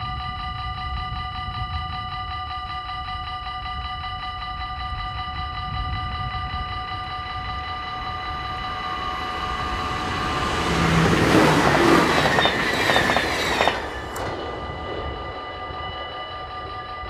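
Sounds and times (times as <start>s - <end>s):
level-crossing bells ringing: 0.0s - 17.0s
passenger train passing: 6.2s - 17.0s
train wheels clacking: 7.8s - 17.0s.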